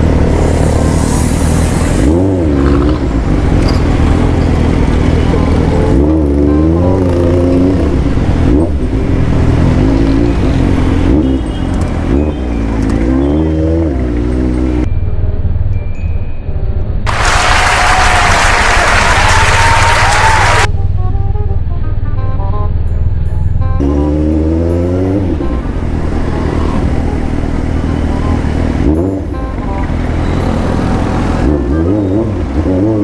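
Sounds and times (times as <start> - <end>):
motorcycle engine revving: 0.0 - 14.9, 22.8 - 33.0.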